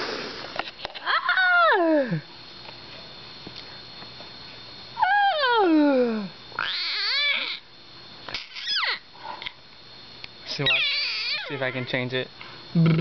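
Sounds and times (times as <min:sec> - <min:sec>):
baby making screechy groans: 0:06.6 - 0:07.6.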